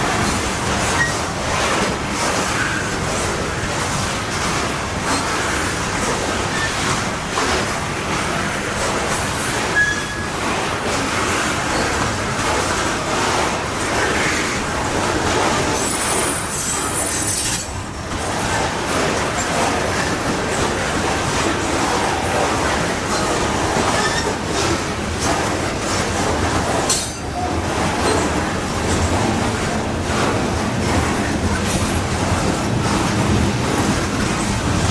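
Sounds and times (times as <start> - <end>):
train cars rumbling on rails: 0.0 - 34.9
high wheel squeals: 9.2 - 10.4.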